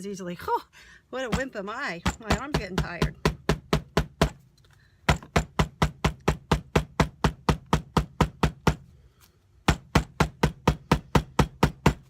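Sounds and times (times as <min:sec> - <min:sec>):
hammer striking leaf on paper: 0:01.3 - 0:04.4, 0:05.1 - 0:08.8, 0:09.6 - 0:12.0.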